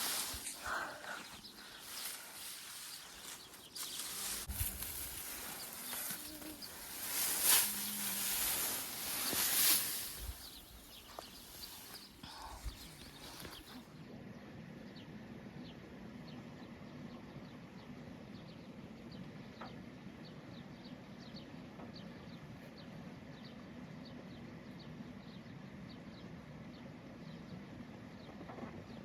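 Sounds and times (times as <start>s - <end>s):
steady low rumble: 0.0s - 13.6s
small birds chirping: 0.0s - 14.1s.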